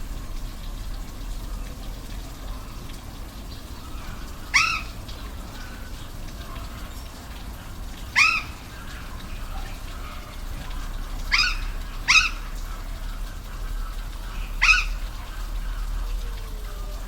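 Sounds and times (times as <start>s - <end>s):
waterfall running: 0.0s - 17.0s
short arched bird calls: 3.6s - 5.9s, 8.1s - 9.0s, 11.2s - 12.6s, 14.2s - 15.2s.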